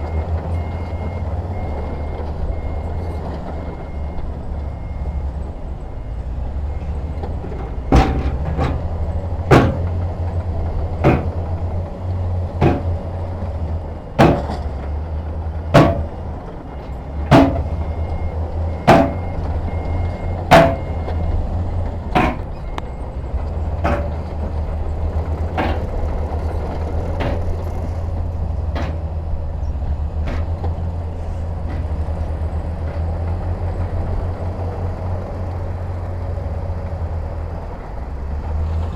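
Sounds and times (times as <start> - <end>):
diesel machinery droning: 0.0 - 38.9
sharp metallic knocks: 7.4 - 11.8, 12.5 - 13.4, 14.2 - 14.8, 15.7 - 16.4, 17.3 - 18.0, 18.8 - 19.4, 20.5 - 21.2, 22.1 - 22.8, 23.8 - 24.4, 25.5 - 26.2, 27.1 - 28.0, 28.7 - 29.1, 30.2 - 30.6, 31.6 - 32.2.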